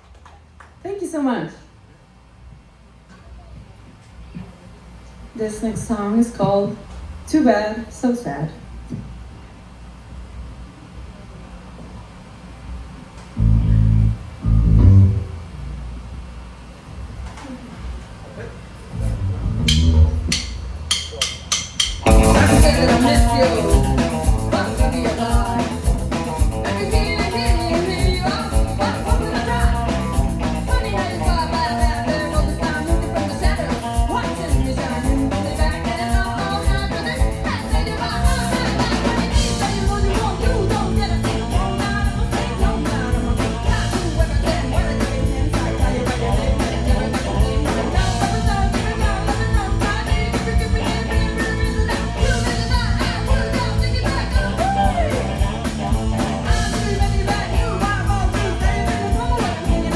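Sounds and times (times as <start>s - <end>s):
rock band playing: 13.4s - 15.4s, 18.9s - 59.9s
person singing: 22.1s - 55.9s, 56.5s - 59.9s.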